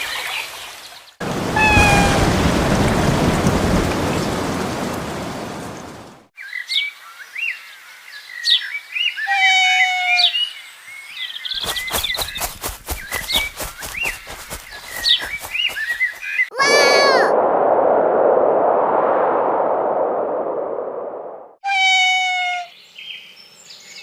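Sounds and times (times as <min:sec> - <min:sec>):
heavy rain: 0:01.2 - 0:06.3
songbirds chirping: 0:04.1 - 0:16.5, 0:22.7 - 0:24.0.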